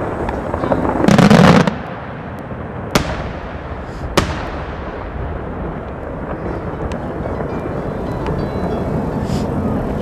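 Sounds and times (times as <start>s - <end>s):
faint sharp firework pops: 1.1s - 5.0s.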